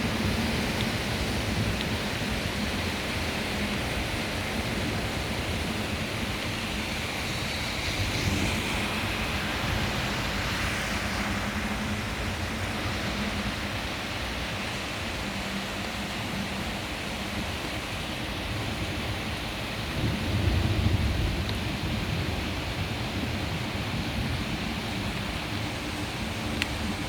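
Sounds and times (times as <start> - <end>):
heavy rain pouring: 0.0 - 27.0
low thunder rumble: 19.8 - 27.0.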